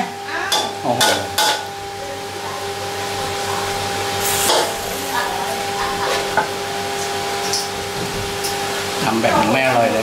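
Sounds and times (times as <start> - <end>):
steady hum: 0.0 - 10.0
meat sizzling in a wok: 2.4 - 10.0.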